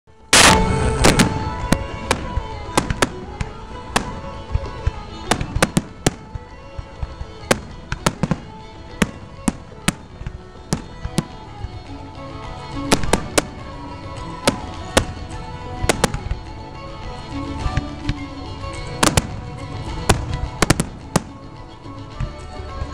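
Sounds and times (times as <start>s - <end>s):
music playing: 0.1s - 22.9s
fireworks bangs and pops: 0.3s - 22.9s.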